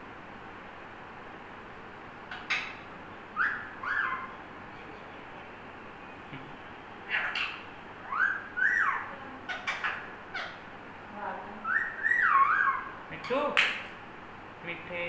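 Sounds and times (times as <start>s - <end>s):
parrot squawks: 2.3s - 2.8s, 3.4s - 4.4s, 7.1s - 10.7s, 11.6s - 13.4s
parrot whistling: 3.4s - 4.3s, 7.1s - 9.1s, 11.6s - 13.0s.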